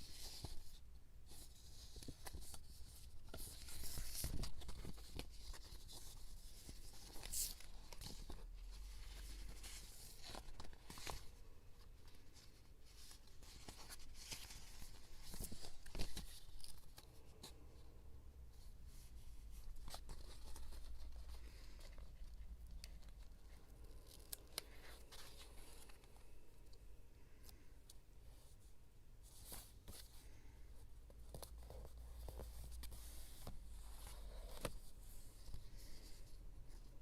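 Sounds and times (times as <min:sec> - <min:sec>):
paper rustling: 0:00.0 - 0:17.6, 0:18.9 - 0:26.4.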